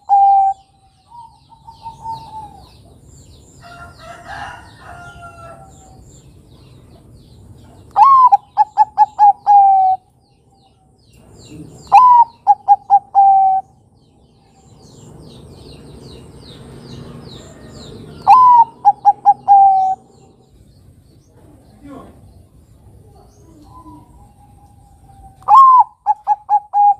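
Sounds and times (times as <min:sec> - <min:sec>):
dove cooing: 0:00.0 - 0:03.0, 0:08.0 - 0:10.1, 0:11.5 - 0:13.8, 0:17.4 - 0:20.3, 0:23.0 - 0:26.9
small birds chirping: 0:00.0 - 0:26.9.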